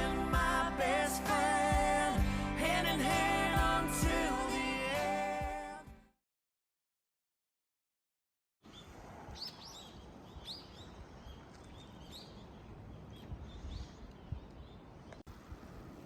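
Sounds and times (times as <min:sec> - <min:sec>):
small birds chirping: 0:08.6 - 0:16.0.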